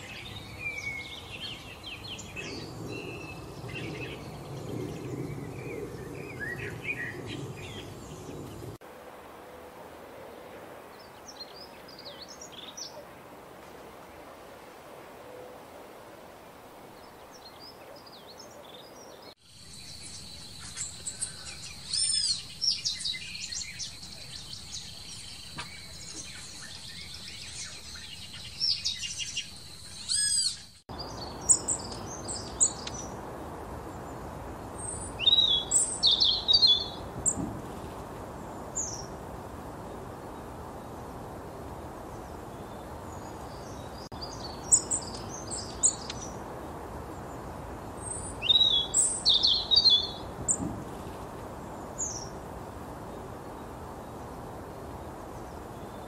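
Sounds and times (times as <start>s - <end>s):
small birds chirping: 17.0s - 33.3s, 34.0s - 39.2s, 42.0s - 46.5s, 47.2s - 52.4s
steady hiss: 19.4s - 30.2s.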